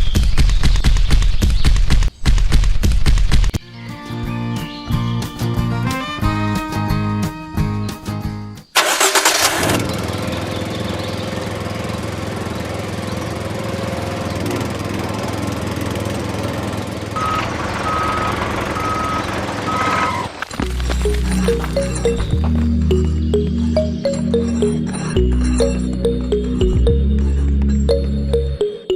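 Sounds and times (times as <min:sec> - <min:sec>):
small engine running: 0:08.8 - 0:22.3.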